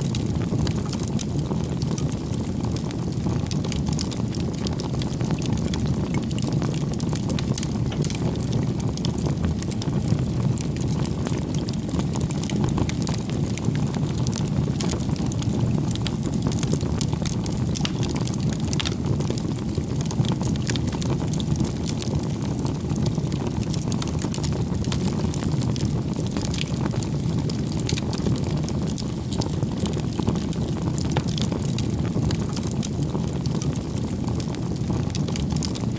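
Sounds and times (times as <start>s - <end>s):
bonfire flame roaring: 0.0s - 35.9s
burning wood crackling: 0.0s - 35.9s.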